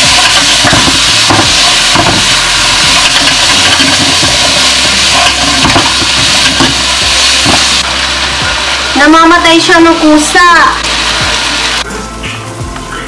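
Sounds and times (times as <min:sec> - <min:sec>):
spatula scraping a pan: 0:00.0 - 0:06.8
food sizzling in a pan: 0:00.0 - 0:13.0.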